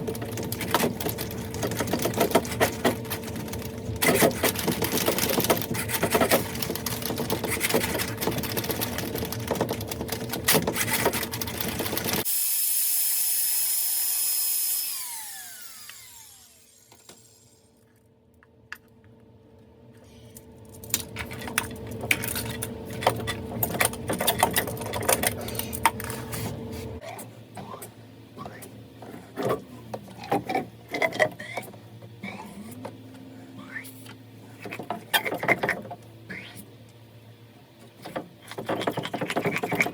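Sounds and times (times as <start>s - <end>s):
motor tool humming and clattering: 0.1s - 17.6s.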